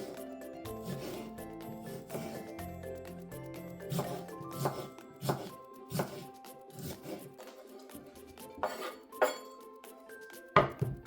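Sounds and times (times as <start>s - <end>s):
soft background music: 0.0s - 11.0s
utensils clinking against dishes: 8.6s - 10.9s.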